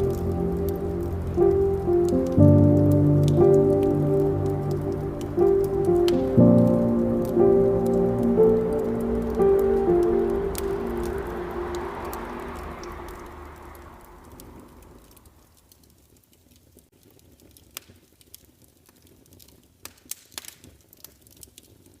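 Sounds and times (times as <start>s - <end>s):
soft hiss: 0.0s - 15.9s
wood fire crackling: 0.0s - 22.0s.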